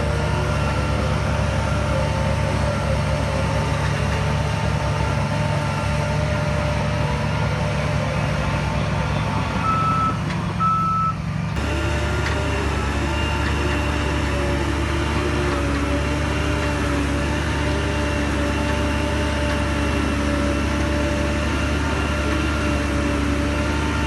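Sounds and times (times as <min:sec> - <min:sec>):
heavy diesel machinery rumbling: 0:00.0 - 0:24.0
reversing alarm beeps: 0:09.6 - 0:11.2.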